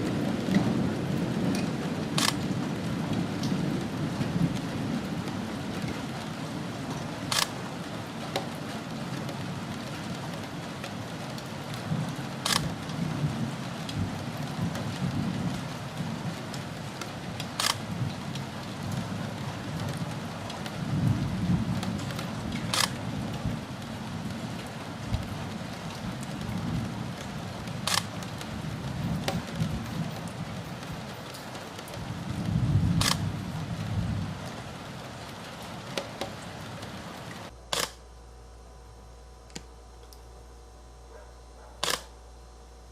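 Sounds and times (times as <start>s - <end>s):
steady rain: 0.0s - 42.9s
sharp click: 2.2s - 2.4s, 7.3s - 7.5s, 12.4s - 12.7s, 17.6s - 17.8s, 22.7s - 23.0s, 27.9s - 28.1s, 33.0s - 33.2s, 37.7s - 38.0s, 41.8s - 42.1s
thunder rumbling: 11.8s - 31.2s, 31.9s - 37.5s.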